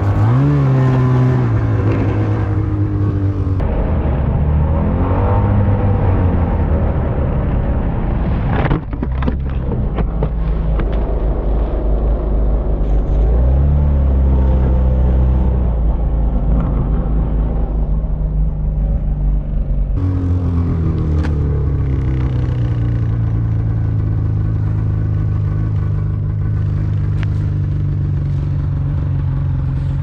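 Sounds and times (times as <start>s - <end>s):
snowmobile engine revving: 0.0s - 6.9s, 20.0s - 30.0s.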